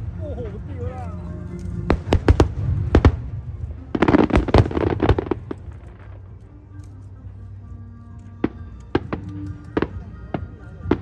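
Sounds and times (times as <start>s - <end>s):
background music: 0.0s - 11.0s
fireworks bangs and crackling: 1.7s - 6.4s, 8.4s - 11.0s.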